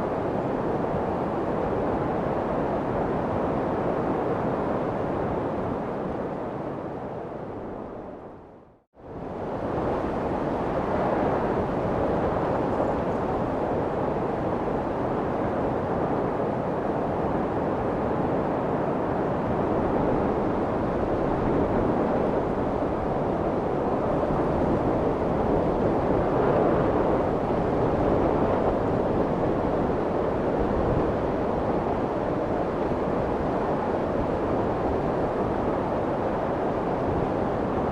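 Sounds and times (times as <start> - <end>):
steady white noise: 9.3 - 37.9.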